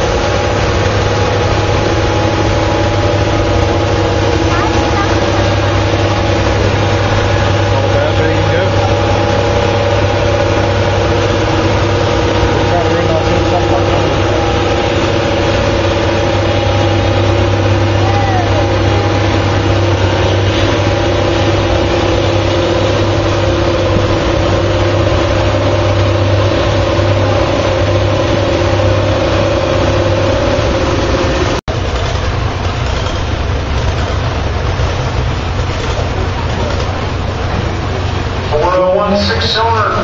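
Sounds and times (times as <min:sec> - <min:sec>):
rough engine running: 0:00.0 - 0:40.0
tractor diesel engine running hard: 0:00.0 - 0:40.0
crowd noise: 0:02.2 - 0:31.9.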